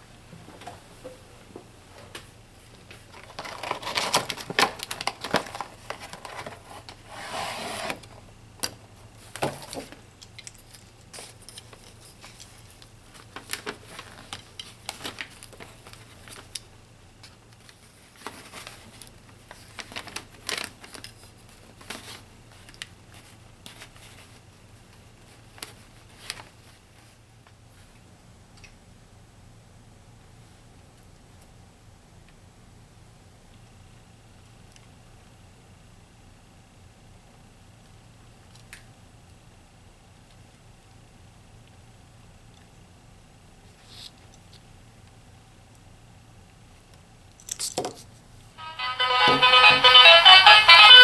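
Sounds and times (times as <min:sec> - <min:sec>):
packaging rustling: 0:03.1 - 0:06.9, 0:17.7 - 0:22.8.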